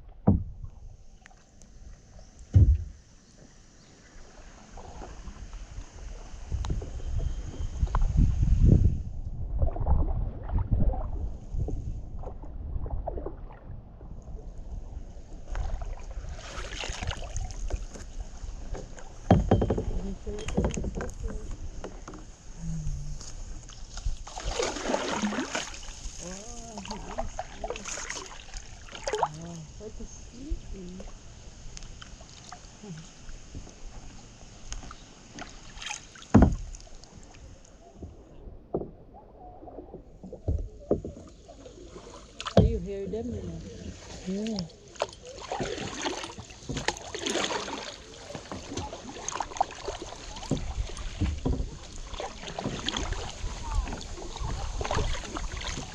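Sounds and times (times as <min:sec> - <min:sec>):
kayak paddle strokes: 0:00.0 - 0:09.0, 0:14.4 - 0:55.9
light knocks against hull: 0:00.1 - 0:00.8, 0:02.4 - 0:03.5, 0:17.6 - 0:22.4, 0:33.5 - 0:39.1, 0:39.9 - 0:41.6, 0:42.4 - 0:55.9
sharp paddle knocks: 0:02.5 - 0:03.0
wind rumble on microphone: 0:04.6 - 0:27.8, 0:49.5 - 0:55.9
water splashing: 0:09.5 - 0:55.9.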